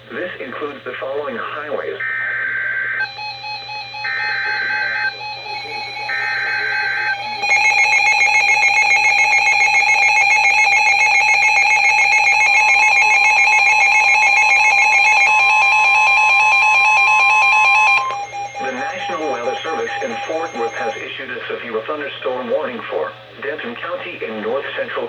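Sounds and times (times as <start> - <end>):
screechy digital bursts: 2.0 - 21.0
steady alarm tone: 2.0 - 21.2.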